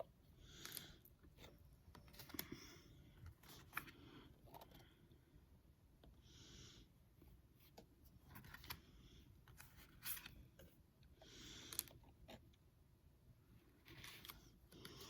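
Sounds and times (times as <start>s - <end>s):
cards rustling sliding: 9.5s - 10.5s, 13.8s - 15.0s.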